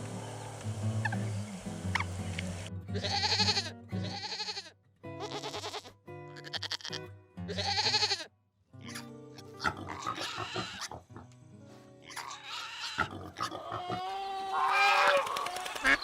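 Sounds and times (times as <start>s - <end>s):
background music: 0.0s - 14.5s
sheep or goat bleating: 2.9s - 11.0s, 12.0s - 15.2s.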